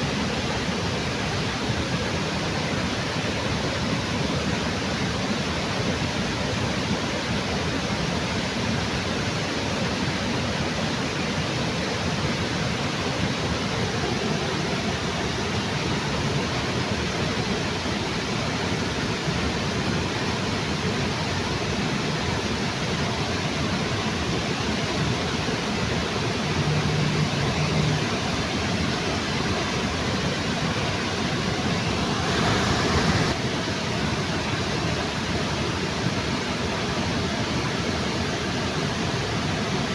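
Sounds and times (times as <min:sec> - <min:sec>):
waterfall rushing: 0:10.0 - 0:39.9.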